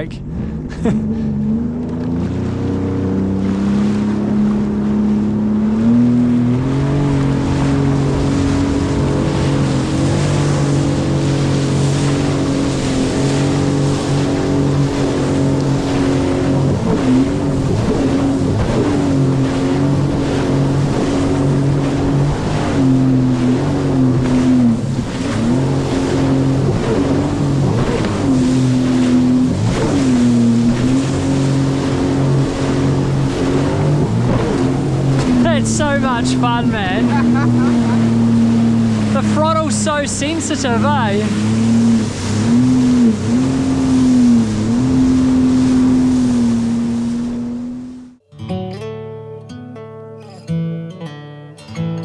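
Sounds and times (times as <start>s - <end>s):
jet ski engine: 0.0s - 48.2s
water and wind rushing: 0.0s - 48.2s.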